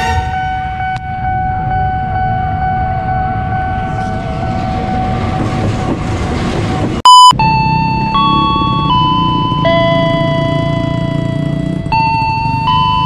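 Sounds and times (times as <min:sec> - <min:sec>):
loud electronic beep: 0:00.0 - 0:05.1, 0:07.0 - 0:11.4
steady pitched tone: 0:00.0 - 0:06.4, 0:07.0 - 0:13.0
locomotive engine rumble: 0:00.0 - 0:07.0
wheels rattling on rail: 0:03.4 - 0:07.0.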